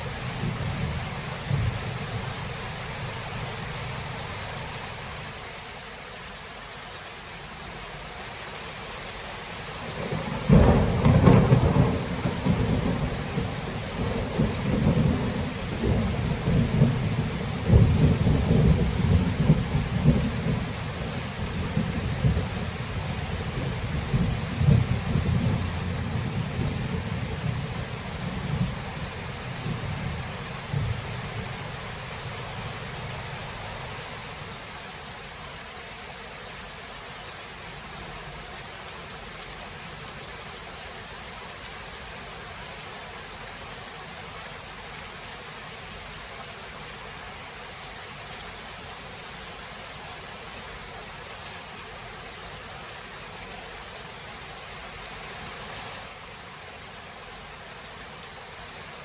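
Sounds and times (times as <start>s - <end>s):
rain falling: 0.0s - 59.0s
thunder rumble: 0.1s - 2.4s, 9.9s - 33.9s.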